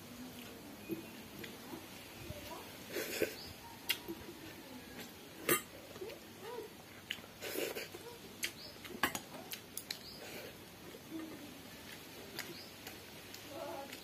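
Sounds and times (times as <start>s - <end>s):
wet chewing: 2.9s - 14.0s
lip smacks and mouth clicks: 3.8s - 4.2s, 8.4s - 10.2s.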